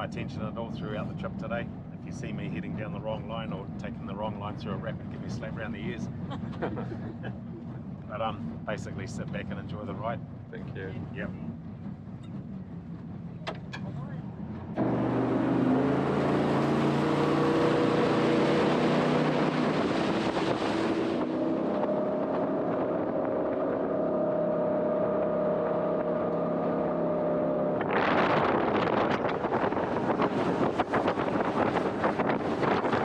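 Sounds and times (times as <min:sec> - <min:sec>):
boat engine hum: 0:00.0 - 0:33.0
wind buffeting microphone: 0:18.9 - 0:33.0.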